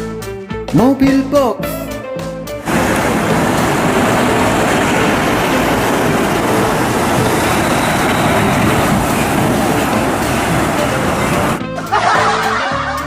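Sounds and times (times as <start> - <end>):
vehicle engine rumble: 2.6 - 11.6.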